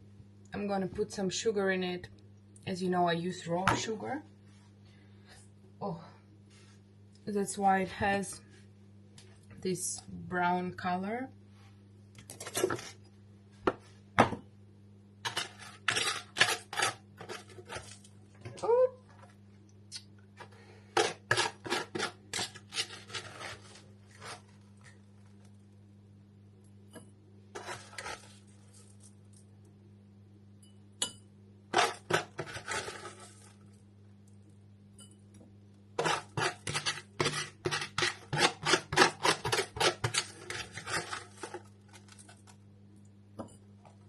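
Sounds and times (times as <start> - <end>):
steady low hum: 0.0 - 44.0
sugar scraping in cup: 15.3 - 18.1, 21.0 - 25.0, 27.6 - 29.2, 31.7 - 33.6, 36.0 - 42.5.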